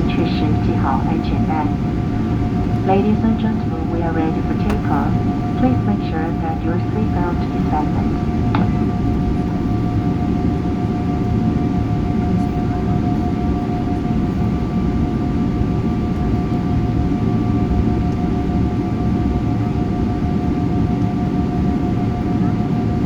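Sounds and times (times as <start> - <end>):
steady whining tones: 0.0 - 13.3
jet engines rumbling: 0.0 - 16.1.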